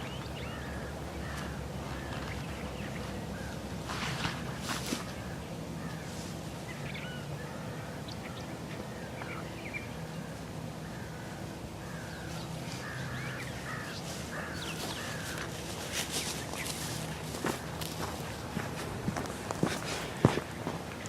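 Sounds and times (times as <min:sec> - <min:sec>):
wild birds calling: 0:00.0 - 0:21.0.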